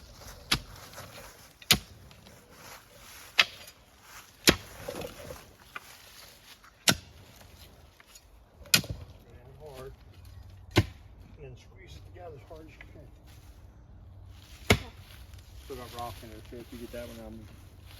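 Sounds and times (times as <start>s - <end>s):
post hole digger striking ground: 0.0s - 2.2s, 3.3s - 3.8s, 4.4s - 5.8s, 6.8s - 7.2s, 8.6s - 9.2s, 10.7s - 11.1s, 14.6s - 15.0s.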